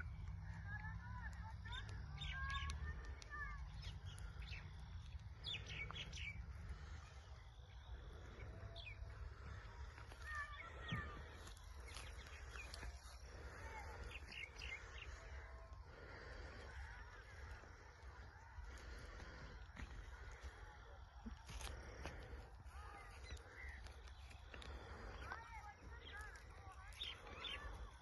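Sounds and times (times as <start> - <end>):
low background rumble: 0.0 - 28.0
bird chirps and tweets: 0.1 - 15.5, 23.0 - 28.0.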